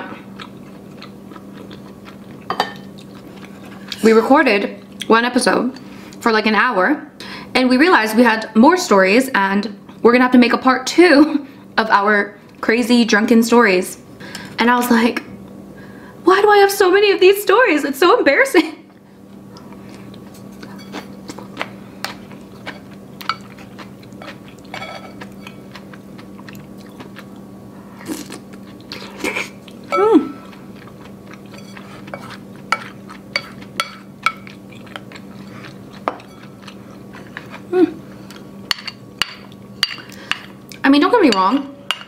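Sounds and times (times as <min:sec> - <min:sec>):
chewing: 0:00.2 - 0:04.1, 0:19.5 - 0:38.5.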